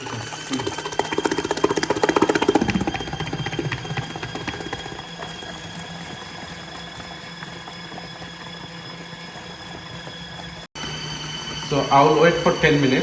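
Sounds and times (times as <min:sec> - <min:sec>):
washing machine motor hum: 0:00.0 - 0:13.0
fast ticking rattle: 0:00.5 - 0:08.8.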